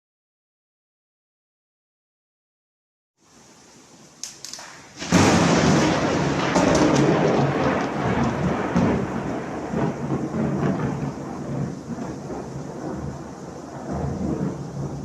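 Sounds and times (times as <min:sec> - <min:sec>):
pouring rain: 0:03.2 - 0:15.0.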